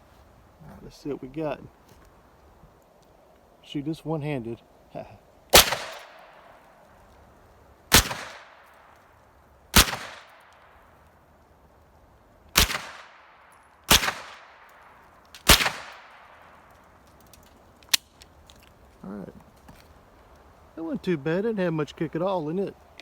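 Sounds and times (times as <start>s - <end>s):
pistol shots with echo: 5.5s - 6.3s, 7.9s - 8.6s, 9.8s - 10.4s, 12.6s - 13.1s, 13.9s - 14.5s, 15.4s - 16.2s.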